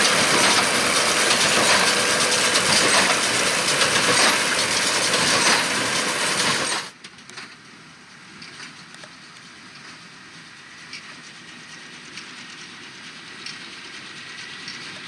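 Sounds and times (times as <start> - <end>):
tractor and baler working: 0.0 - 6.9.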